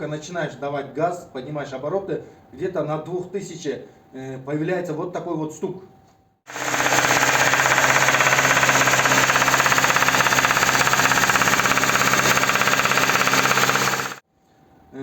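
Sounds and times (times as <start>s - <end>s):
rapid engine knocking: 6.5s - 14.2s.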